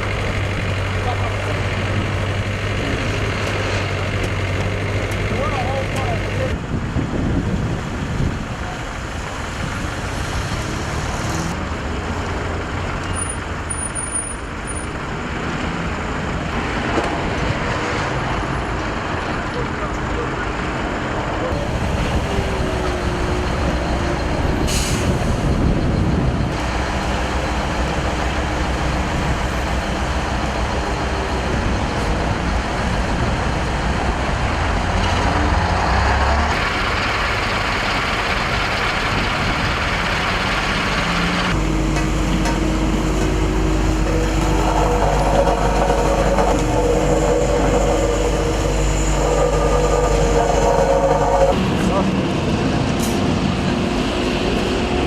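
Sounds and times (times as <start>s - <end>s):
heavy diesel engines running: 0.0s - 55.0s.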